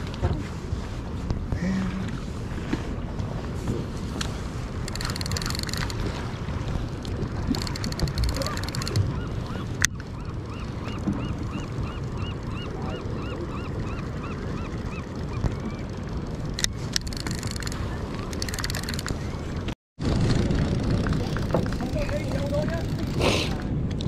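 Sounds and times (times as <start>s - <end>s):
boat rumble: 0.0s - 24.0s
wind: 0.0s - 24.0s
rapid clicking: 4.9s - 6.0s, 7.5s - 9.0s.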